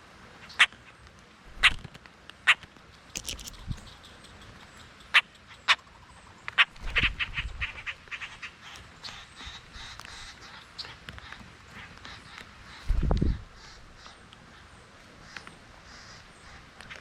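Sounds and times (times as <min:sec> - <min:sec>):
birds calling sharply: 0:02.9 - 0:17.0.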